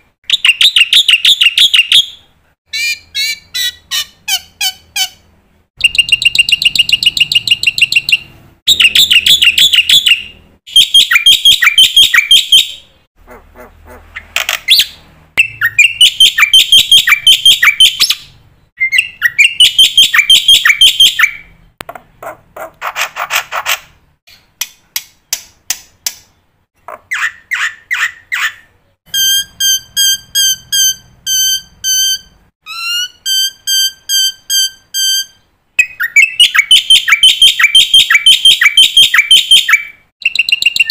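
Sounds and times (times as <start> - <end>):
starling singing: 5.8 - 21.7, 27.0 - 40.9
repeated whistled notes: 29.1 - 40.9.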